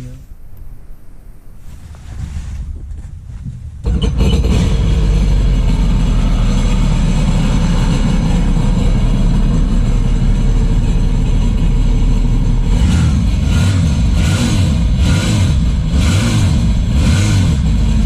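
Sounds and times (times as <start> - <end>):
watercraft engine droning: 4.1 - 13.3.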